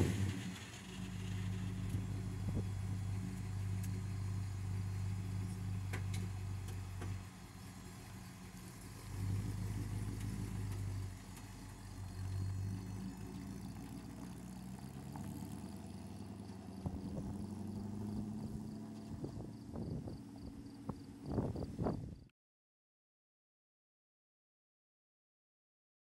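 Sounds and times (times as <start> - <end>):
truck engine revving: 0.0 - 21.3.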